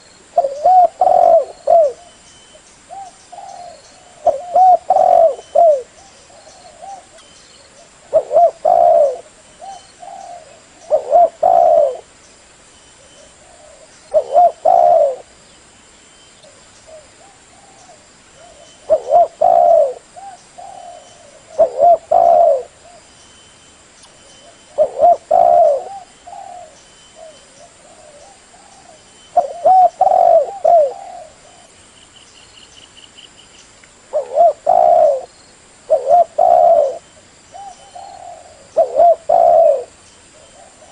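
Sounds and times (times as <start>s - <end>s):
dove cooing: 0.3s - 12.1s, 13.0s - 15.4s, 16.5s - 23.1s, 24.4s - 31.8s, 34.1s - 35.3s, 35.9s - 40.9s.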